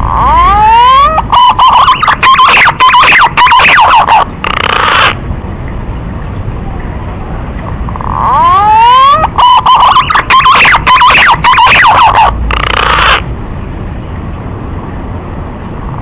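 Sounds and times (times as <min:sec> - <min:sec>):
pigeon whistling calls: 0:00.1 - 0:05.2, 0:07.9 - 0:13.2.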